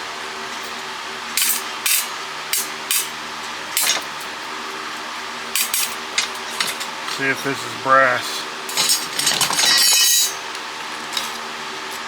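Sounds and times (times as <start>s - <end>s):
steady low hum: 0.0s - 12.0s
small parts clinking and clattering: 3.8s - 4.1s, 8.7s - 12.0s.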